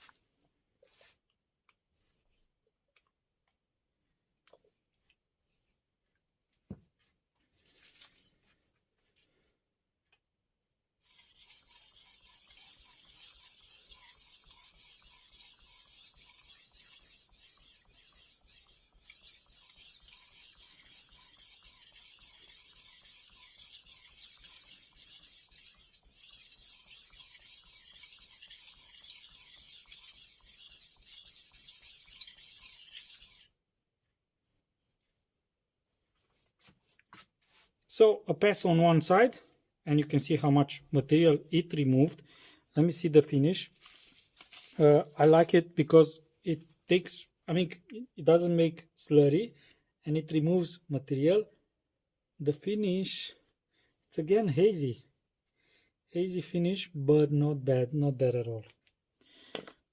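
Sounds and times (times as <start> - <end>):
knife scraping on whetstone: 11.0 - 33.5.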